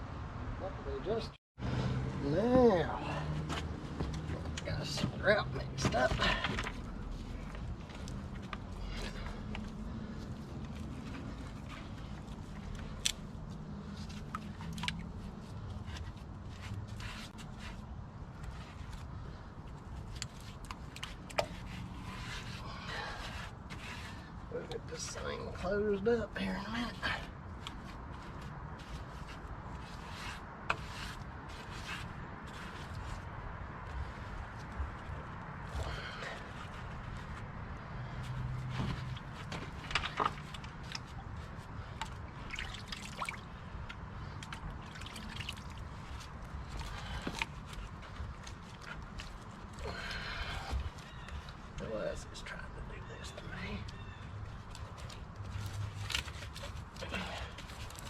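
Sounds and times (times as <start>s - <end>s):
scraping wet grout: 5.8s - 33.3s
wet trickling: 8.0s - 17.4s, 40.1s - 49.9s
clicks and scrapes of hand work: 27.6s - 33.3s.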